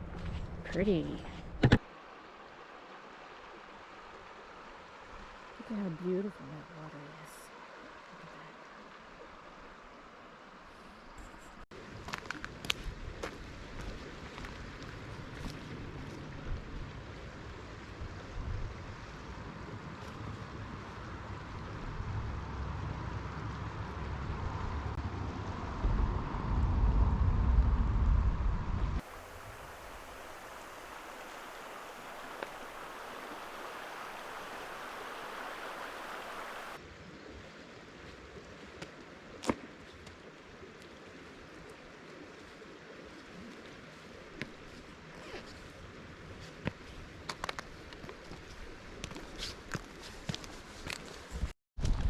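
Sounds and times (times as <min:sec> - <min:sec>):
creek water running over rocks: 0:00.8 - 0:11.2, 0:11.8 - 0:21.6, 0:29.0 - 0:51.2
wind rumble on microphone: 0:11.8 - 0:37.6, 0:51.2 - 0:52.0.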